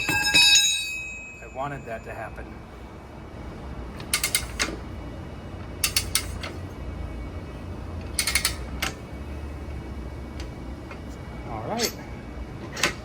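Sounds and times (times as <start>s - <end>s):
ratchet clicking rapidly: 4.1s - 4.8s, 5.8s - 6.5s, 8.2s - 8.7s.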